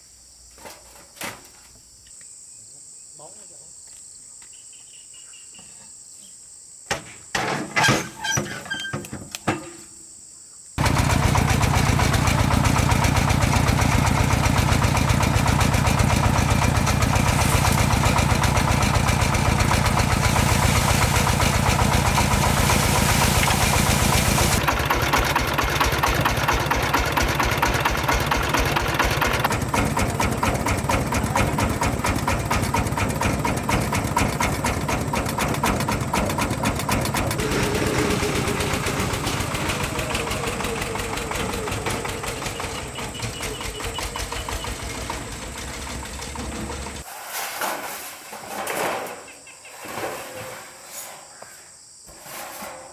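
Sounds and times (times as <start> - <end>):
small motor chattering: 10.8 - 47.0.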